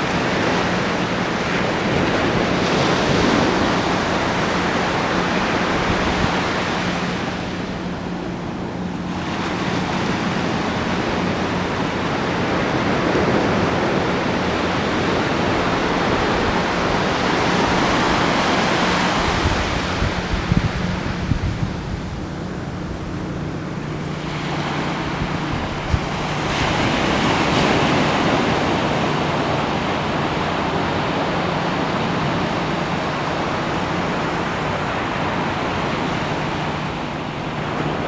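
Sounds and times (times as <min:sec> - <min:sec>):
ocean waves breaking on shore: 0:00.0 - 0:38.0.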